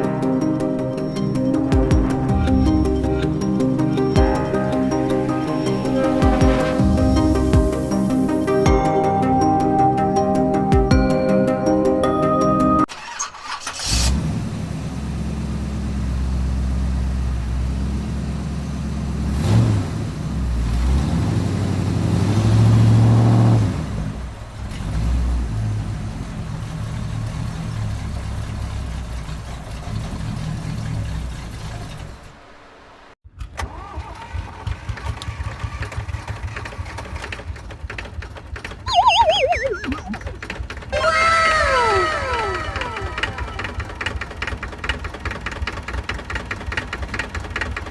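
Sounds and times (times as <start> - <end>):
engine revving and idling: 13.7 - 32.2.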